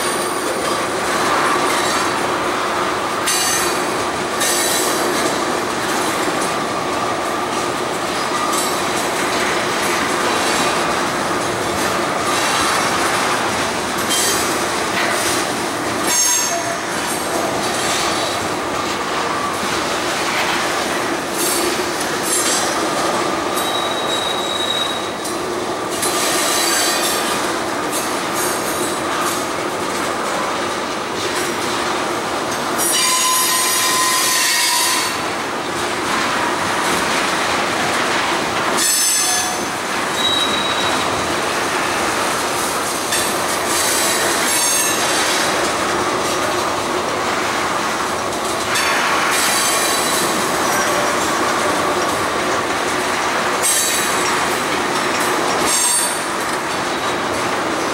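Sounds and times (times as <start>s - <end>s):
squealing train wheels: 0.0s - 2.4s, 3.1s - 29.6s, 32.5s - 35.4s, 38.4s - 46.4s, 48.6s - 52.3s, 53.5s - 57.9s.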